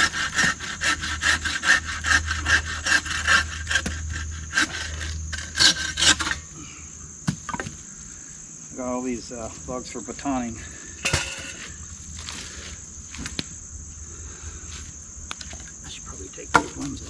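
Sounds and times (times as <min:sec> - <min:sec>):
saw cutting wood: 0:00.0 - 0:06.4.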